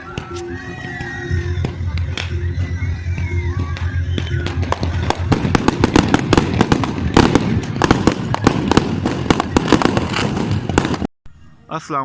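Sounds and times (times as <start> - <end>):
fireworks bangs and crackles: 0.0 - 11.1.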